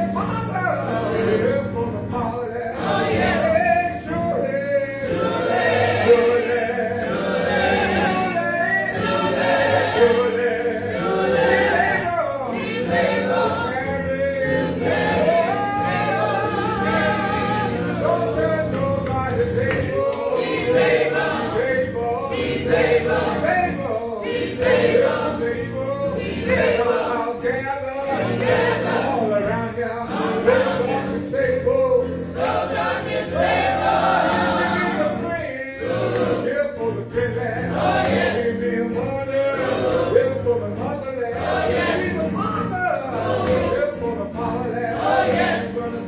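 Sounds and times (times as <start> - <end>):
man singing lead: 0.0 - 5.4, 34.7 - 46.0
gospel choir singing: 0.0 - 46.0
instrumental accompaniment: 0.0 - 46.0.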